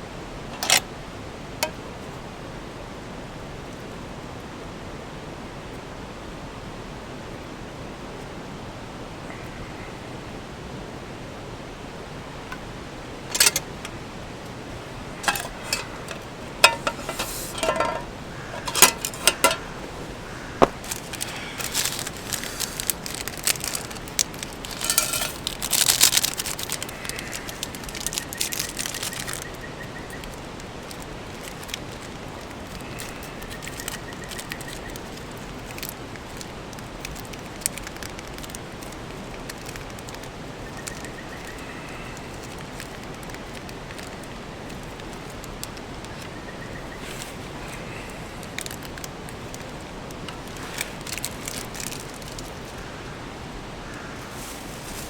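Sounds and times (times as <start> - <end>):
metal cookware clattering: 0.5 - 0.8, 13.3 - 14.0, 15.1 - 26.8.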